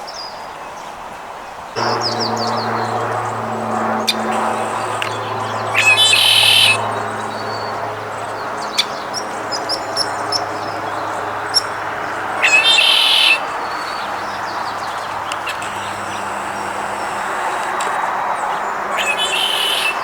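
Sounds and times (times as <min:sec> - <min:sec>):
turkey gobbling: 0:04.1 - 0:06.8, 0:12.4 - 0:18.0, 0:19.0 - 0:20.0
faint small bird chirps: 0:12.4 - 0:14.1.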